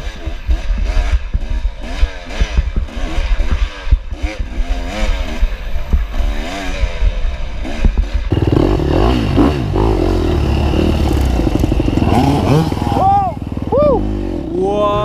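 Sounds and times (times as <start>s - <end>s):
dirt bike engine: 0.0s - 15.0s.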